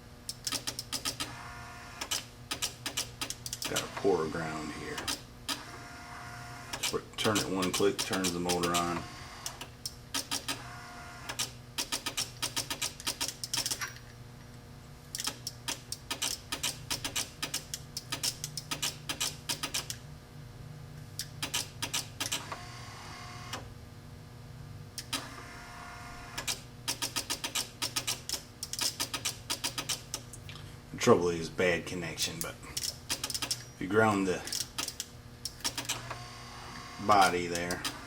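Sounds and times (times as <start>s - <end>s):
electric wiper motor humming: 3.5s - 9.8s, 21.8s - 23.7s, 25.0s - 26.7s, 35.5s - 38.0s
relays clicking rapidly: 6.8s - 10.6s.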